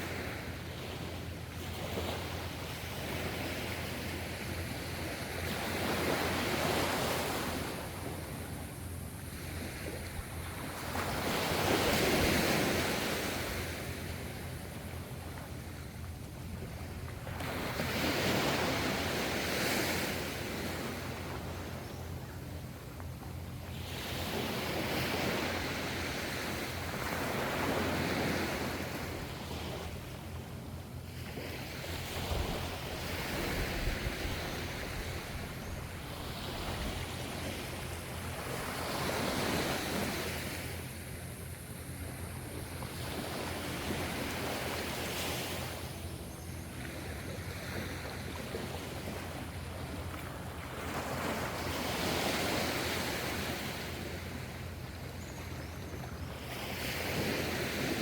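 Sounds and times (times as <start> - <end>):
ocean waves breaking: 22.4 - 55.2.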